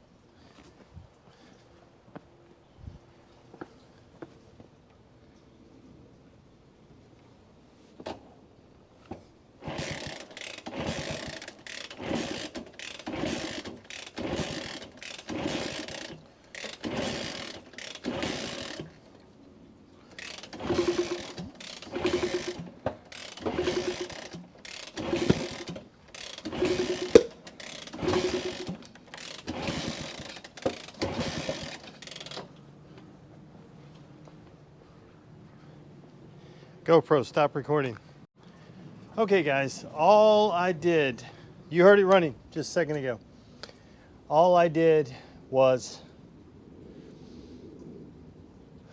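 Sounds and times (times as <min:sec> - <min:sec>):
motorcycle kick starter ratcheting: 0:09.6 - 0:19.1, 0:20.1 - 0:32.6.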